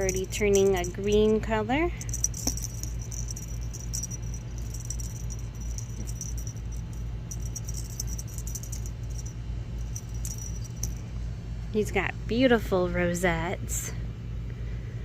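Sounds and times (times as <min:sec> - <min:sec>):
light metallic jingling: 0:00.0 - 0:11.2
steady low hum: 0:00.0 - 0:15.0.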